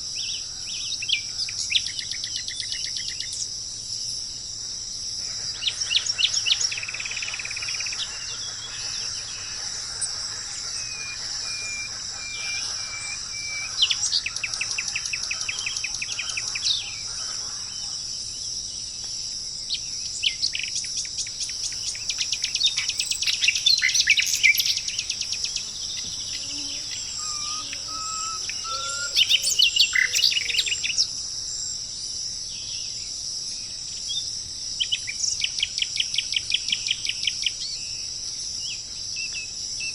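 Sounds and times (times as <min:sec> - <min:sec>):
crickets chirping: 0:21.4 - 0:31.0
songbirds trilling and chirping: 0:21.4 - 0:31.0.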